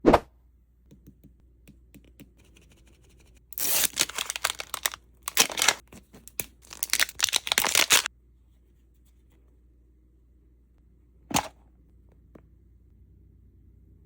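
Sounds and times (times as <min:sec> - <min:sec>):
plastic packaging crinkling and tearing: 0:03.6 - 0:08.1.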